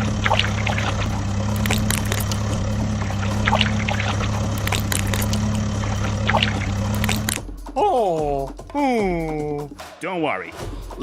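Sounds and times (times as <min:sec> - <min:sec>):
sand or gravel pouring: 0:00.0 - 0:07.4
scattered clicks: 0:00.0 - 0:07.4
vehicle engine droning: 0:00.0 - 0:07.4.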